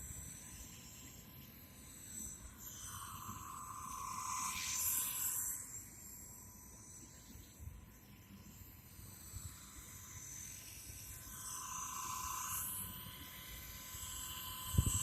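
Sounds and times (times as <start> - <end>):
rc helicopter motor whine: 14.0 - 15.0.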